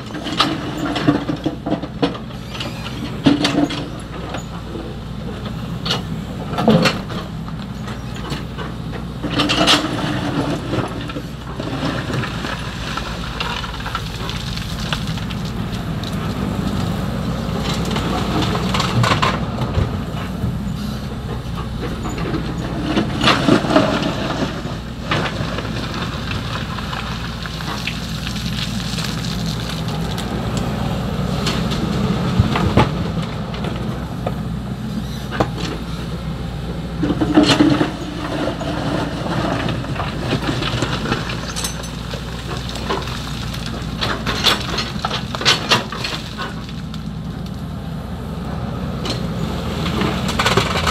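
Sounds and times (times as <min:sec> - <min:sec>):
excavator diesel engine running: 0:00.0 - 0:50.9
bucket scraping through gravel: 0:09.3 - 0:19.3, 0:21.6 - 0:30.5, 0:37.0 - 0:47.0.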